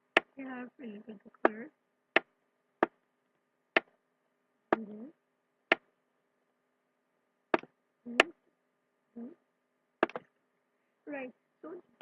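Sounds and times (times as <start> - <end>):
sharp clicks on drawing board: 7.5 - 7.7, 10.0 - 10.3.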